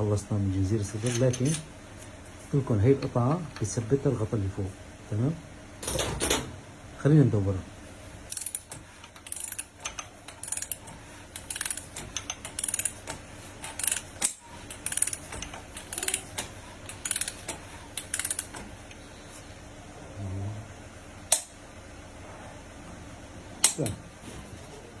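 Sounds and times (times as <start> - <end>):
ratchet wrench clicking: 8.3 - 18.6.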